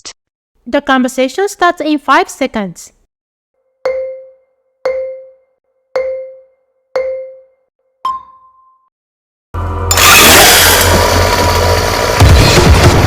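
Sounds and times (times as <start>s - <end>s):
countdown chime tones: 3.8s - 8.9s.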